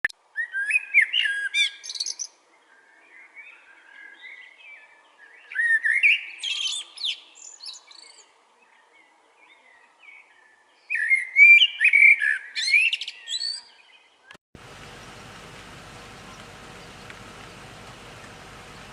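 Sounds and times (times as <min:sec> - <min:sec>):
songbird warbling whistled phrases: 0:00.4 - 0:02.2, 0:10.9 - 0:13.9
soft bird twittering: 0:09.4 - 0:18.9.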